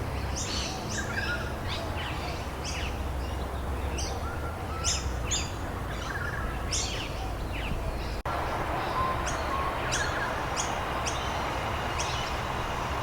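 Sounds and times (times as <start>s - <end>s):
birds chirping: 0.0s - 13.0s
background hiss: 8.0s - 13.0s.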